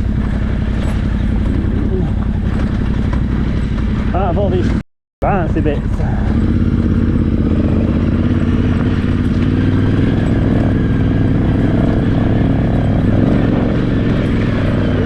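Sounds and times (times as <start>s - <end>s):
light clatter from motorcycle: 0.0s - 7.3s
motorcycle engine running: 0.0s - 15.0s.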